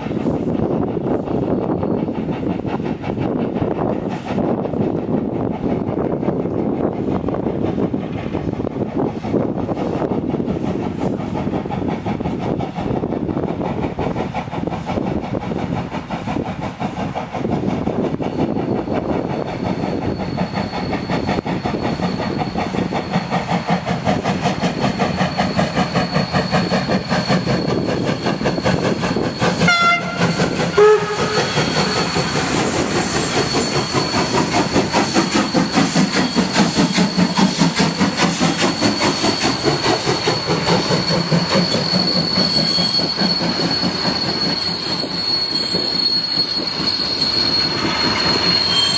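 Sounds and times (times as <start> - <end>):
steam locomotive exhaust beats: 0.0 - 48.9
steam whistle blast: 29.4 - 32.3.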